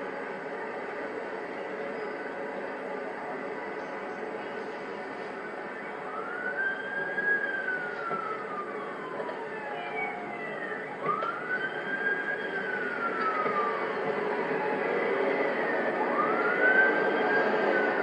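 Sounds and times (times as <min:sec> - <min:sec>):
steady rushing noise: 0:00.0 - 0:18.0
siren wailing: 0:05.2 - 0:18.0.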